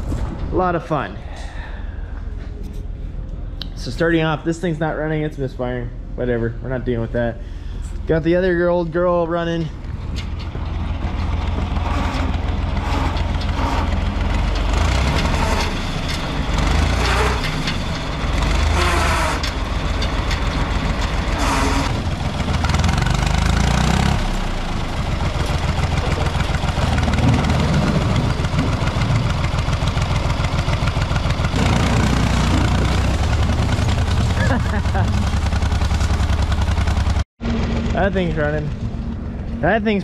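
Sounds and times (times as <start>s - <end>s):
car engine running: 7.8s - 40.0s.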